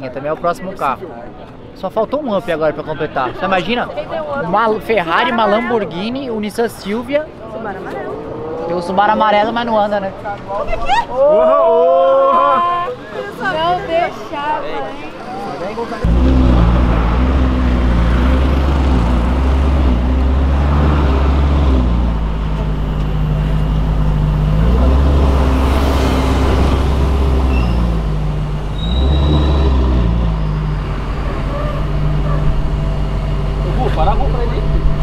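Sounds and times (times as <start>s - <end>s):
car engine idling and revving: 16.0s - 35.0s.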